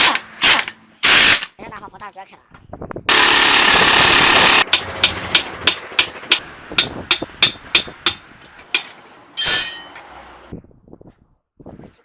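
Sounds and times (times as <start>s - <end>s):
hammer striking metal: 3.1s - 10.0s.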